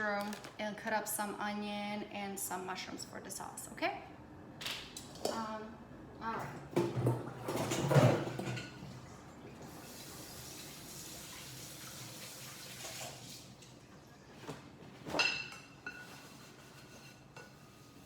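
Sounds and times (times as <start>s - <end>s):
kitchen tap running: 9.5s - 13.8s.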